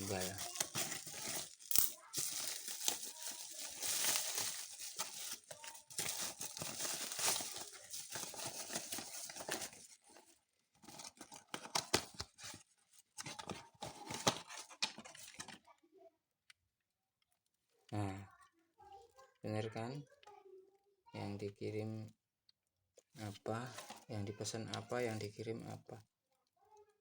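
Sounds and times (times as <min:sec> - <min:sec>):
packaging being torn and crinkled: 0:00.0 - 0:10.0.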